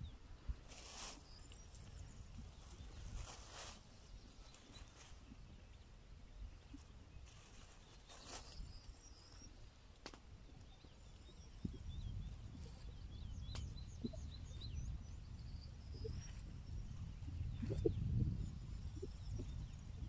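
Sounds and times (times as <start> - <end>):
small birds chirping: 0.0 - 20.0
faint sharp clicks: 10.0 - 10.3.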